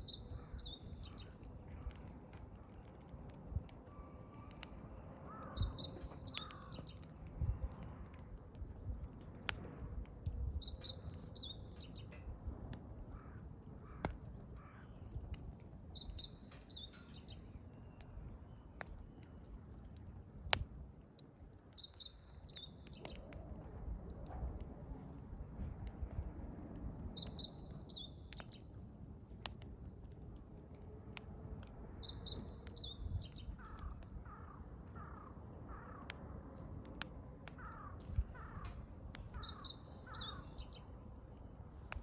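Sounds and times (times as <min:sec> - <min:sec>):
songbird singing: 0:00.0 - 0:03.0, 0:03.8 - 0:12.3, 0:13.1 - 0:19.5, 0:21.6 - 0:25.2, 0:26.9 - 0:30.2, 0:31.6 - 0:36.1, 0:37.4 - 0:41.1
campfire burning: 0:00.0 - 0:42.0
firewood popping: 0:00.0 - 0:42.0.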